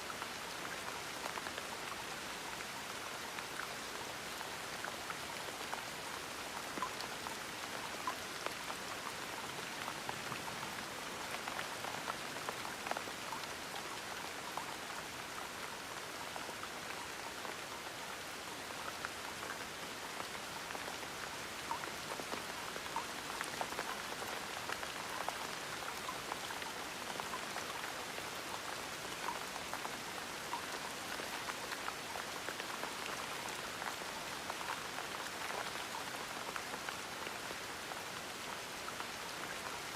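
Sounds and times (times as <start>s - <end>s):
gentle rain patter: 0.0s - 39.9s.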